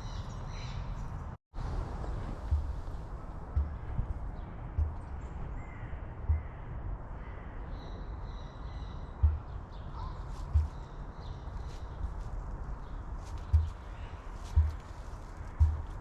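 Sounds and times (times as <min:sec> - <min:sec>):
low rumble: 0:01.6 - 0:07.5
dull thumps: 0:02.3 - 0:05.2, 0:06.2 - 0:06.6, 0:09.2 - 0:09.7, 0:10.4 - 0:10.9, 0:13.3 - 0:16.0
faint high bird calls: 0:02.6 - 0:12.3.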